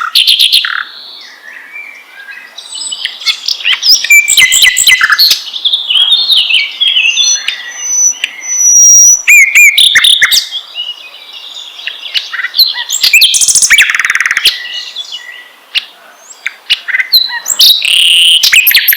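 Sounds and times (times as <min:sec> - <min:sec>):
songbird singing: 0:00.0 - 0:18.9.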